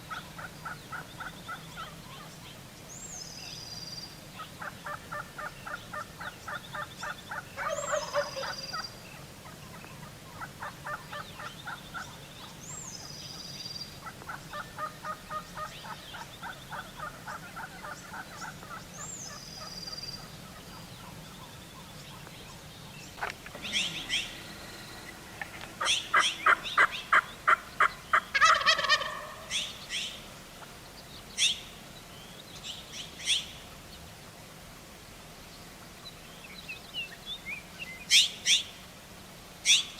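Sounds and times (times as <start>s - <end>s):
turkeys gobbling: 0.0s - 2.3s, 4.4s - 12.6s, 14.0s - 22.3s, 23.2s - 30.7s
small birds chirping: 0.0s - 38.9s.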